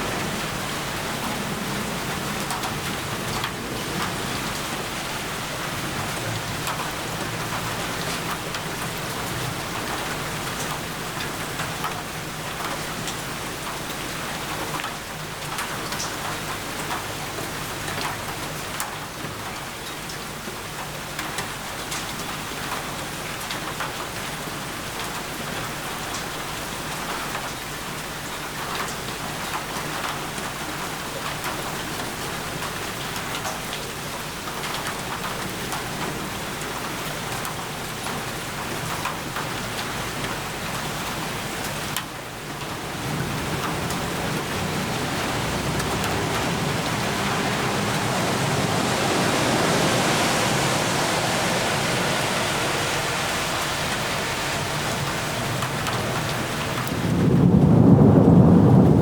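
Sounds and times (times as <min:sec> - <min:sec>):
heavy rain on a surface: 0:00.0 - 0:59.0
low rumble: 0:43.2 - 0:59.0.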